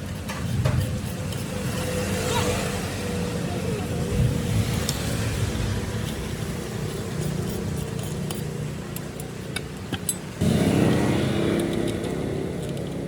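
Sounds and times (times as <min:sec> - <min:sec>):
sharp clicks and ticks: 0:04.7 - 0:13.0
mechanical rumble: 0:10.4 - 0:13.0.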